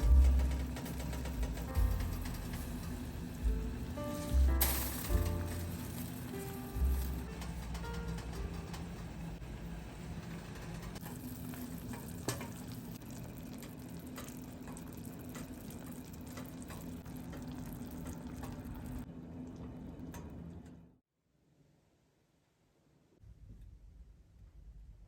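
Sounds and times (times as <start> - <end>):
steady low hum: 0.0 - 21.0
food sizzling in a pan: 2.6 - 7.4, 11.0 - 19.0.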